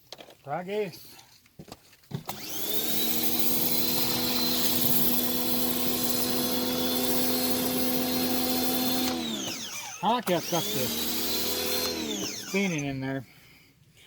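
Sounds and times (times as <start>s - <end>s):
pressure washer motor whining: 2.3s - 13.0s.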